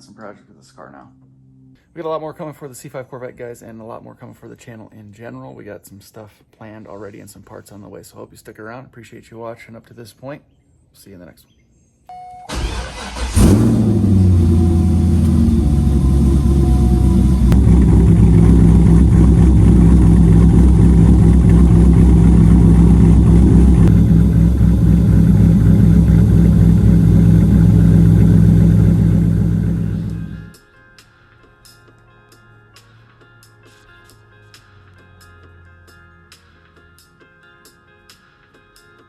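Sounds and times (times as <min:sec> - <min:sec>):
car engine starting and idling: 0:12.5 - 0:30.5.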